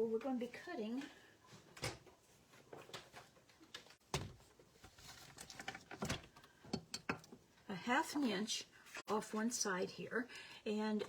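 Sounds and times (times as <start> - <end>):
paper and tools knocking and rustling: 1.8 - 6.4.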